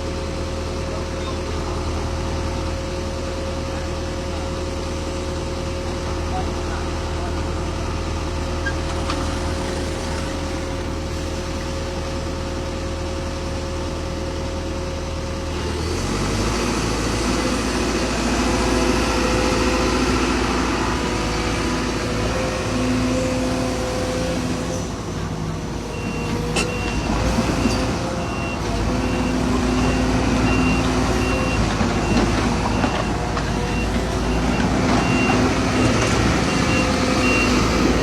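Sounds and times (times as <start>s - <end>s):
heavy diesel engine running: 0.0s - 38.0s
reversing alarm beeping: 25.9s - 38.0s.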